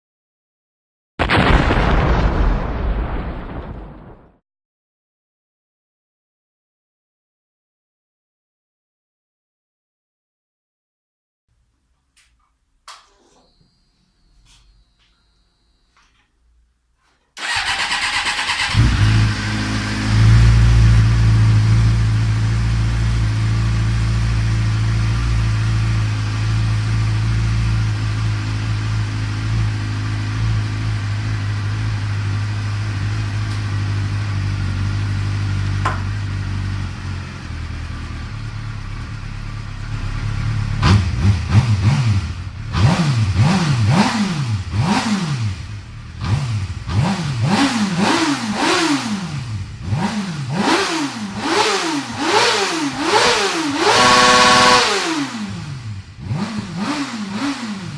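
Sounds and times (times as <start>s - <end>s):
motorcycle engine idling and revving: 17.4s - 57.9s.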